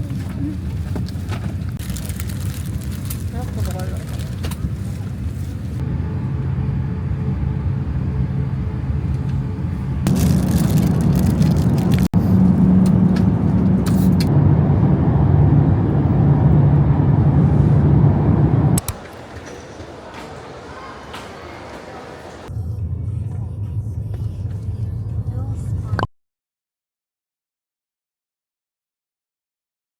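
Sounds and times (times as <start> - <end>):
low vehicle rumble: 0.0 - 21.0, 21.6 - 26.1.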